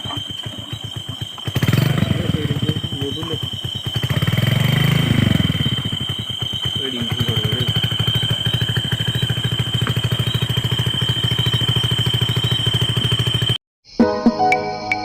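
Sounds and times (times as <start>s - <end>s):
motorcycle engine running: 0.0s - 13.6s
calm instrumental music: 13.9s - 15.0s.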